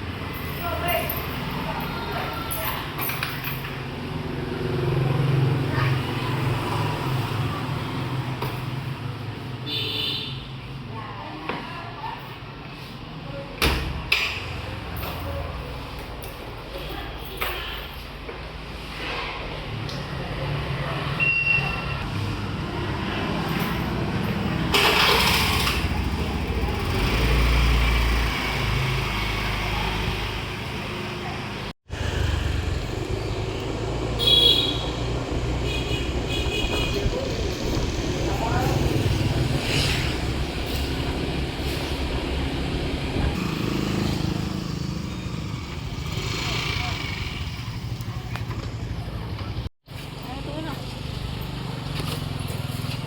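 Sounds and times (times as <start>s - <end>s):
road noise: 0.0s - 53.0s
motorbike engine rumbling: 22.0s - 53.0s.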